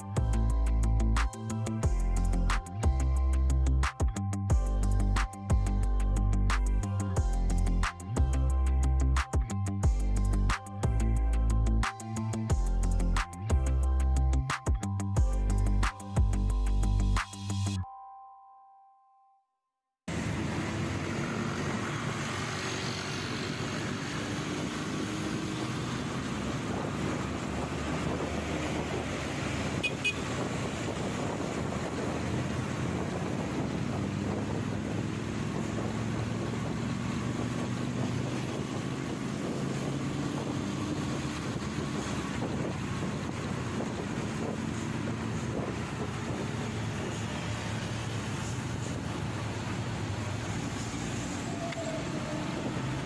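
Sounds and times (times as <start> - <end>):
motorcycle engine running: 20.1 - 50.9
wind buffeting microphone: 26.0 - 47.3.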